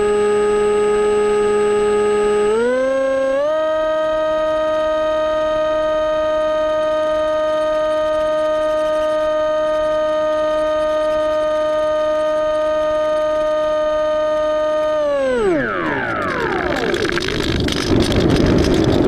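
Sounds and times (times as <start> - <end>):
model plane motor humming: 0.0 - 19.0.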